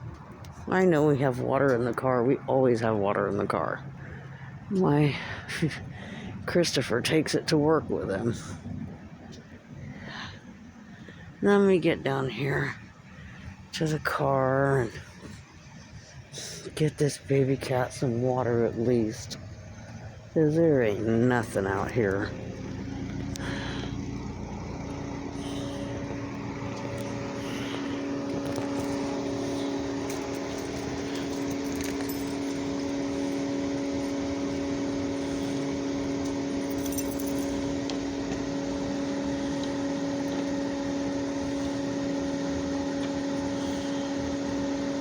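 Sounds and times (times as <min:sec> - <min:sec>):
machine humming: 0:17.3 - 0:45.0.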